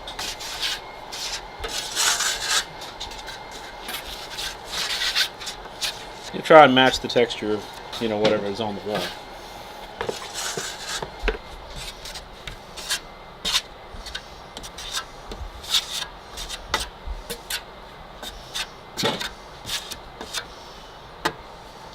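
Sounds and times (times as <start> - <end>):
trowel scraping and slapping compound: 0.1 - 9.2, 10.0 - 11.1, 11.7 - 20.5.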